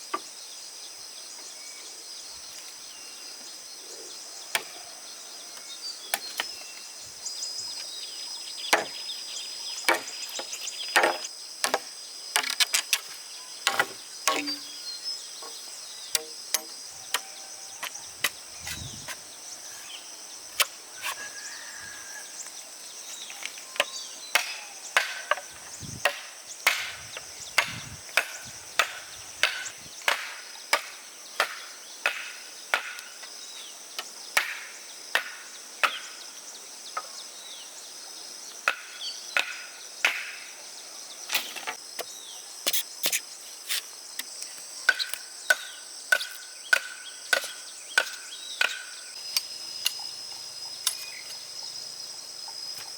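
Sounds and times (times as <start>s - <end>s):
insects droning: 0.0s - 52.9s.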